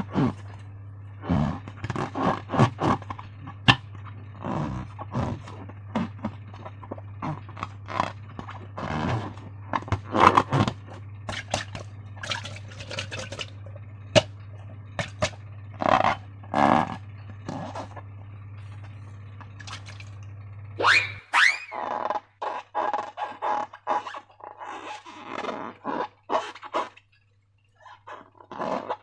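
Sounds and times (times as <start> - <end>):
slime squelching: 0.0 - 27.1
steady low hum: 0.0 - 29.0
short rising squeak: 20.8 - 22.0.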